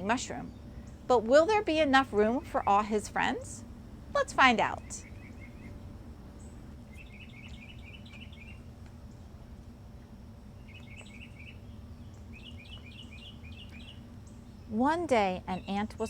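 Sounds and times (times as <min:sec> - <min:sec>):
steady low hum: 0:00.0 - 0:16.0
high bird chirps: 0:06.4 - 0:08.7, 0:10.6 - 0:14.7.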